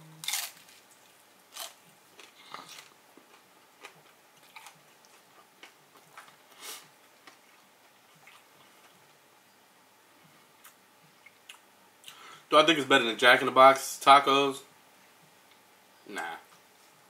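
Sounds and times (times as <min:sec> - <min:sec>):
person chewing crunchy taco: 0:00.2 - 0:09.1.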